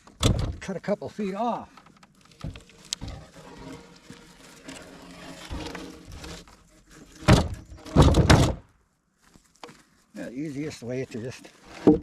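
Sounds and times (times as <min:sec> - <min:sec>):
wooden knocks and scrapes: 0:01.6 - 0:08.7, 0:11.4 - 0:12.0.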